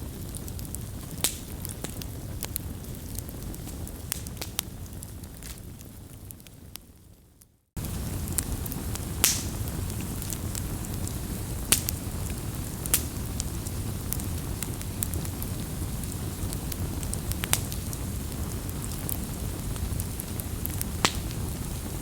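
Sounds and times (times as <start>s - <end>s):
low rumble of flames: 0.0s - 22.0s
burning wood pops and crackles: 0.1s - 7.1s, 7.8s - 22.0s.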